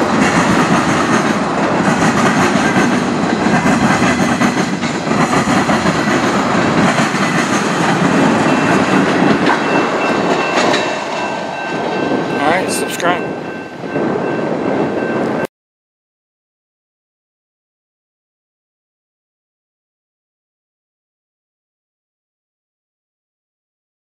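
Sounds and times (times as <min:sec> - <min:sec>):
train wheels clacking on rail joints: 0:00.0 - 0:12.4.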